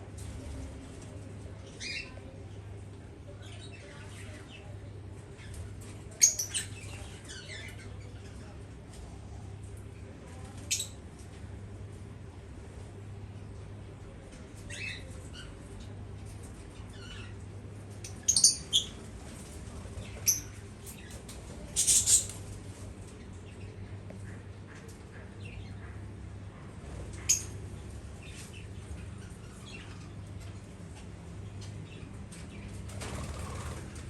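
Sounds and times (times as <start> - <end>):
birds chirping: 14.6 - 26.4, 27.1 - 34.0.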